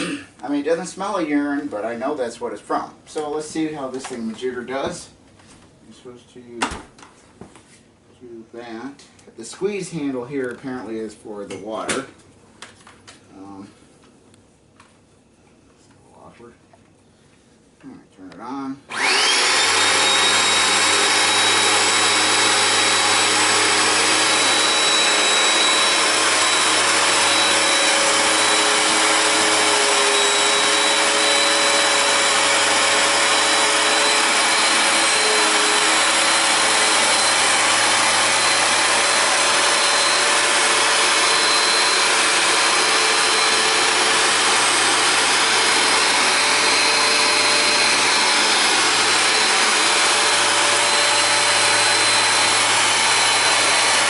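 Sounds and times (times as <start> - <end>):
carpet cleaner motor whine: 18.9 - 54.0.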